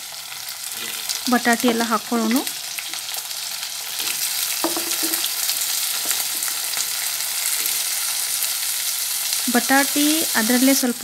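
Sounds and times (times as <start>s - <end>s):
oil sizzling in a wok: 0.0s - 11.0s
potatoes dropped into frying pan: 4.6s - 5.4s.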